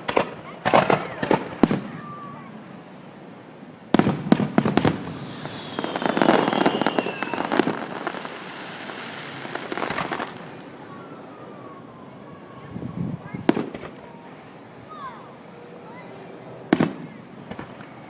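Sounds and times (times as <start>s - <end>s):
firework pops: 0.0s - 2.0s, 9.6s - 10.4s, 13.4s - 14.0s, 16.7s - 18.0s
fireworks banging: 0.0s - 2.6s, 3.9s - 11.1s, 12.8s - 14.4s, 16.7s - 18.0s
fireworks crackling: 0.0s - 14.6s, 15.8s - 18.0s
falling firework whistle: 4.0s - 12.6s.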